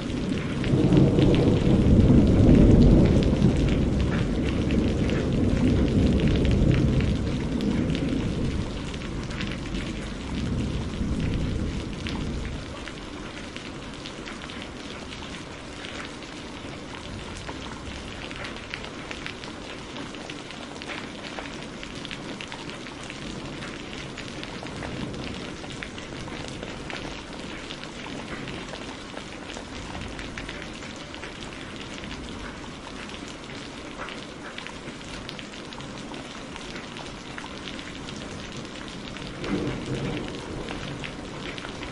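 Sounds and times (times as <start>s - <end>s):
thunder rumble: 0.0s - 16.0s, 38.1s - 41.9s
steady rain falling: 0.0s - 41.9s.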